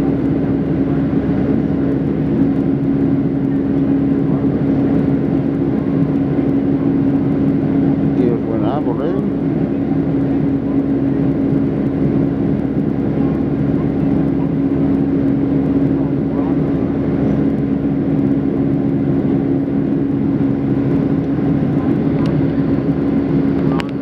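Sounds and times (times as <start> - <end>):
airliner cabin drone: 0.0 - 24.0.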